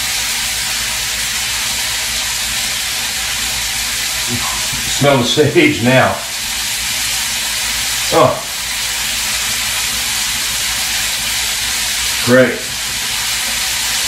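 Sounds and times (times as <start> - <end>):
chicken sizzling in a skillet: 0.0 - 14.0.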